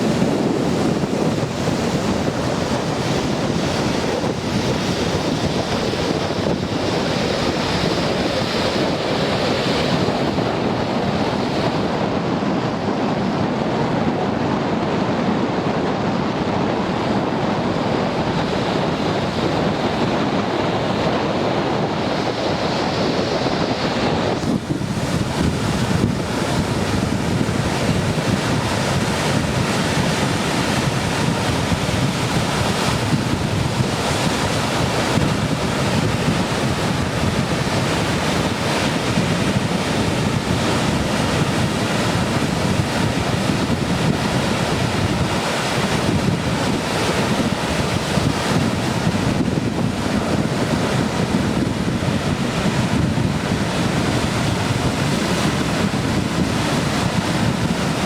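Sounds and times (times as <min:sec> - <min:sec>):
ocean surf breaking: 0:00.0 - 0:58.0
wind buffeting microphone: 0:00.0 - 0:58.0.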